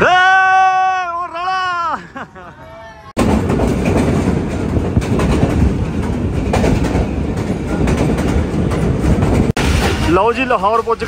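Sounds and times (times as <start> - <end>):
train wheels rumbling on rails: 3.1 - 11.0
clacks over rail joints: 3.2 - 11.0.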